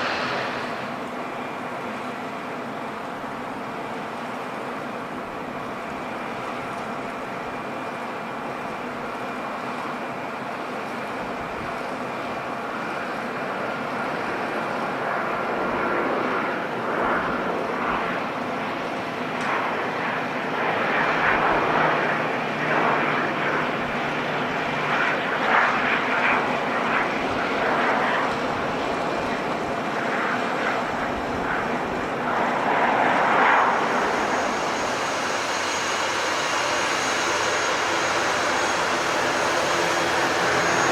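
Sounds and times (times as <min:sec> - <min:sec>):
airliner engines droning: 0:00.0 - 0:40.9.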